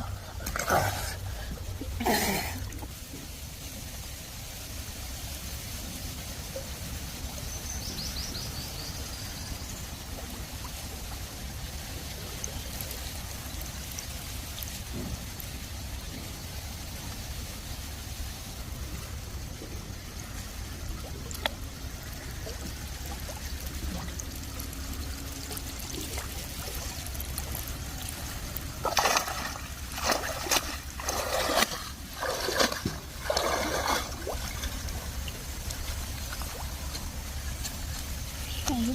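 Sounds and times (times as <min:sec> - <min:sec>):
water trickling: 0:00.0 - 0:38.9
loud water splashes: 0:22.4 - 0:37.7.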